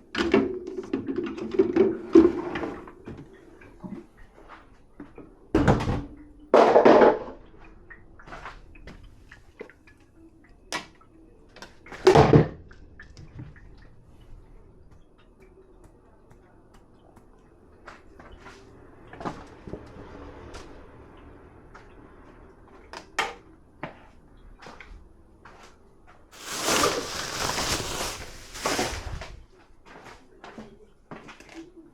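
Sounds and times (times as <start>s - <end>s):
dishes clattering: 5.6s - 7.4s.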